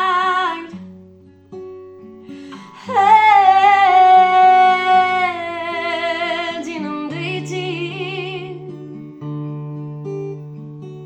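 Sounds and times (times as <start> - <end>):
woman singing: 0.0 - 0.8, 2.5 - 8.9
acoustic guitar: 0.0 - 11.0.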